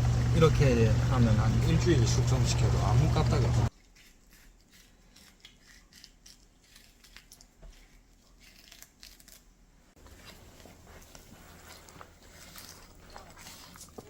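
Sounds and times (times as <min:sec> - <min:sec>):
low steady hum: 0:00.0 - 0:05.0.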